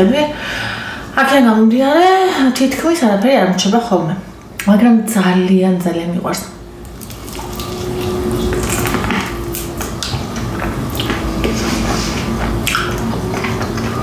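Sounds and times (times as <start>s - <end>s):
low hum: 3.8s - 14.0s
crunching of crispy chicken: 6.8s - 10.2s.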